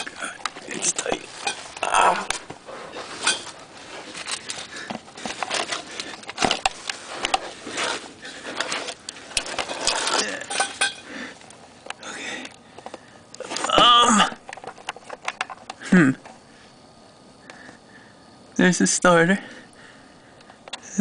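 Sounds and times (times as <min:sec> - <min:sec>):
metal tools clinking and scraping: 0:00.0 - 0:11.4.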